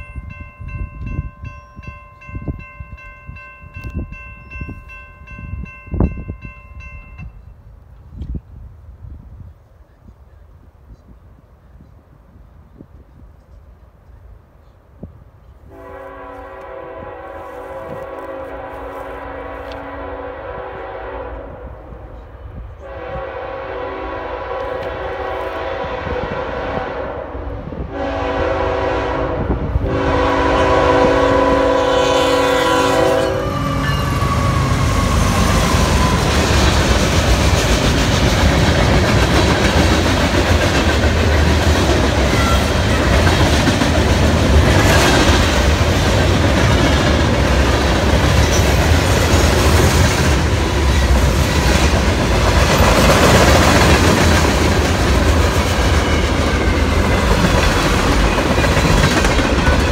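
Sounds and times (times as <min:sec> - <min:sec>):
locomotive air horn blasts: 0:15.7 - 0:22.1, 0:22.8 - 0:36.5
freight cars rolling on rails: 0:32.9 - 0:59.9.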